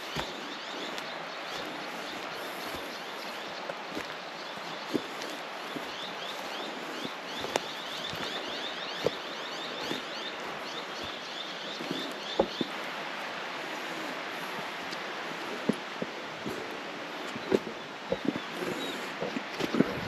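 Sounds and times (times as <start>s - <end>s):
bird chirping: 0.0s - 12.8s, 16.4s - 20.0s
footsteps: 0.0s - 13.0s, 13.6s - 20.0s
steady rustling: 0.0s - 20.0s.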